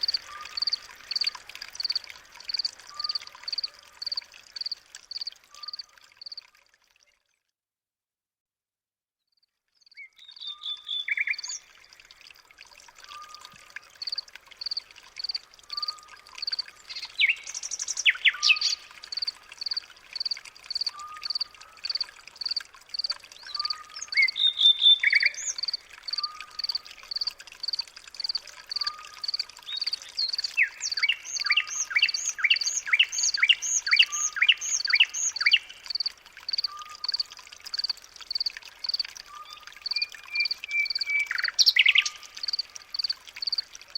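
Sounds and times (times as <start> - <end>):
songbirds chirping and trilling: 13.0 - 37.2, 37.8 - 43.6.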